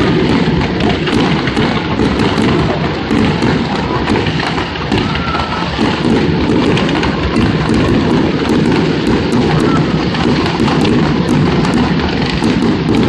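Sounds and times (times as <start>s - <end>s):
fireworks shell bursts rumbling: 0.0s - 13.0s
sharp fireworks crackles: 0.0s - 13.0s.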